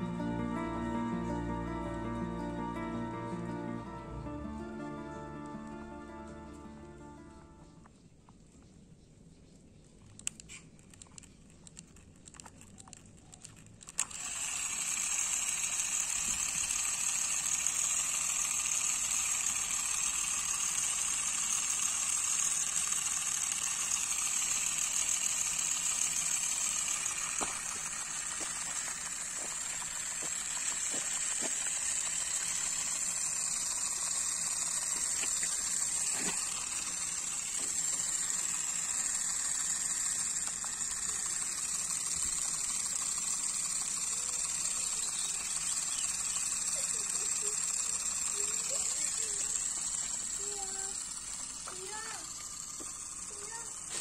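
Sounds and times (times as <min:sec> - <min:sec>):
faint clicks: 0:10.0 - 0:14.2.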